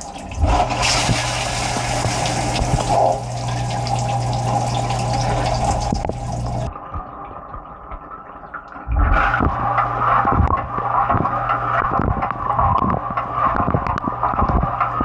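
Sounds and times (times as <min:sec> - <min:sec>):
dishwasher pump motor hum: 0:00.0 - 0:06.7
water spraying: 0:00.0 - 0:06.7.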